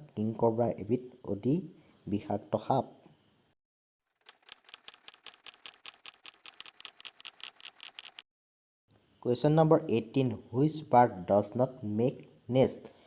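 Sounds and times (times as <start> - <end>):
fast sharp clicks: 4.2 - 8.2.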